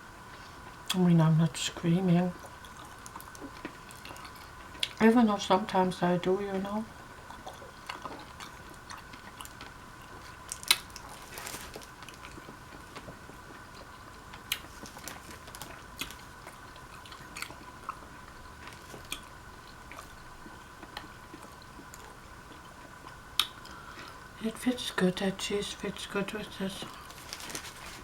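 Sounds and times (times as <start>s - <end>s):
faint steady hum: 0.0s - 28.0s
person chewing with wet smacks: 2.4s - 5.0s, 7.2s - 24.2s.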